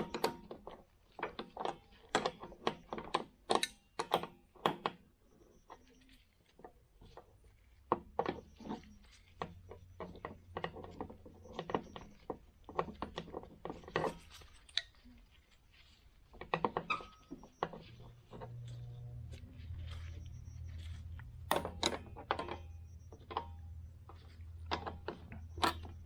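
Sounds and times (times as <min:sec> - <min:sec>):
hand tools clicking and knocking: 0:00.0 - 0:05.0, 0:06.6 - 0:15.0, 0:16.4 - 0:26.0
low steady hum: 0:03.6 - 0:26.0.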